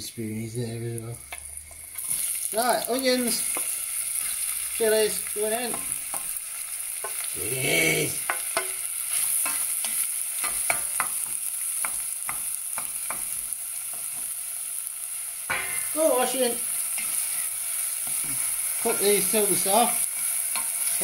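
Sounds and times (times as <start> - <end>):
onions sizzling in a pan: 0.0 - 21.0
wooden spoon scraping a pan: 1.3 - 2.5, 8.2 - 13.3.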